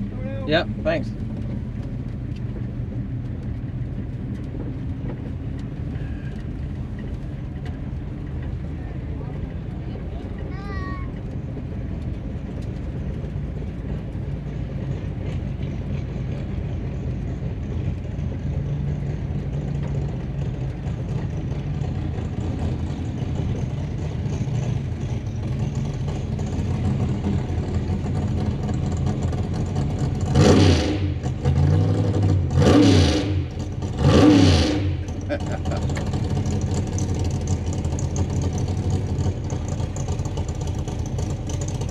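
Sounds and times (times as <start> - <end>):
car engine running: 0.0 - 41.9
engine revving: 25.6 - 41.9.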